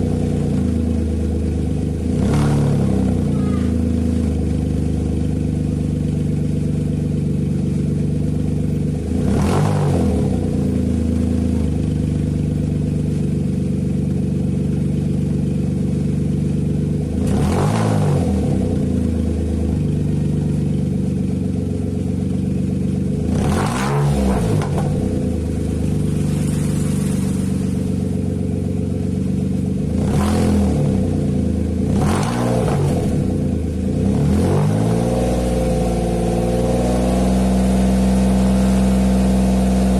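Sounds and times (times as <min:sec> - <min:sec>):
raspy car engine revving: 0:02.0 - 0:05.2, 0:08.2 - 0:11.7, 0:16.3 - 0:39.9.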